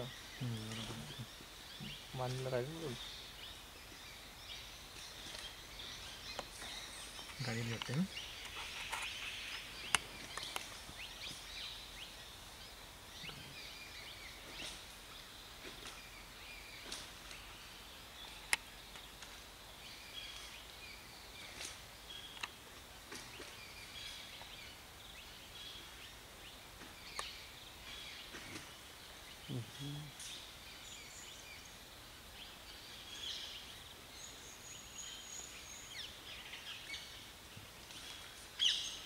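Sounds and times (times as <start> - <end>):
bird chirps and calls: 0.0 - 12.4, 26.9 - 31.7.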